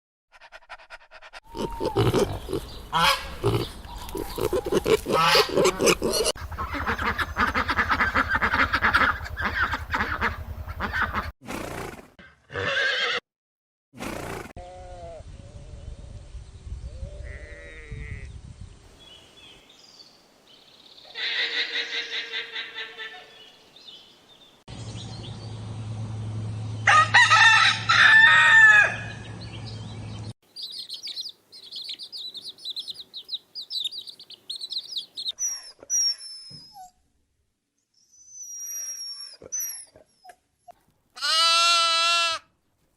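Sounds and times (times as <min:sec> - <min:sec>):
rooster crowing: 0:26.8 - 0:29.3
sheep bleating: 0:41.2 - 0:42.5.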